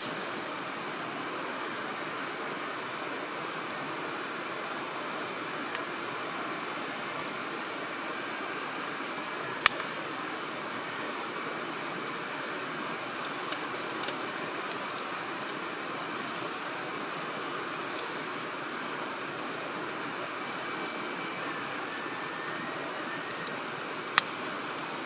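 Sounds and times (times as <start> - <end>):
campfire hissing: 0.0 - 25.0
wood popping and crackling: 9.6 - 16.6.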